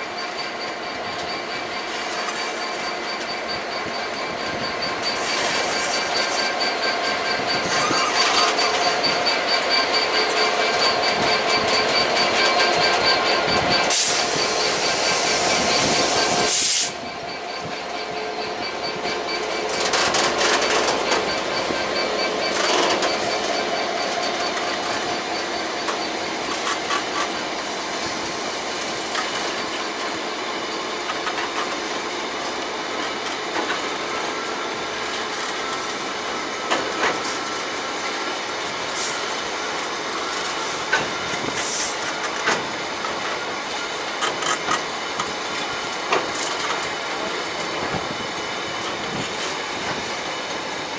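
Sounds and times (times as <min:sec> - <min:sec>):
train rolling noise: 0:00.0 - 0:50.9
train wheels squealing: 0:00.0 - 0:50.9
burst of hiss: 0:13.9 - 0:17.0.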